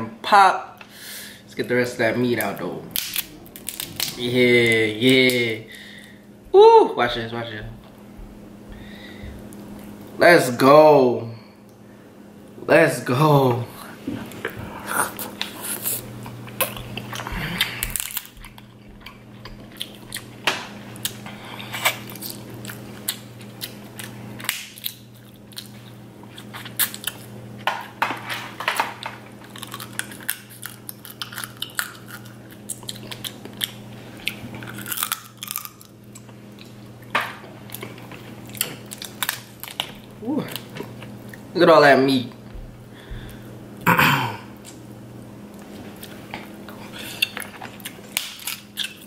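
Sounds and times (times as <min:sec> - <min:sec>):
faint low hum: 0:00.0 - 0:49.0
chewing crab meat: 0:14.2 - 0:27.6, 0:29.4 - 0:41.5, 0:45.5 - 0:49.0.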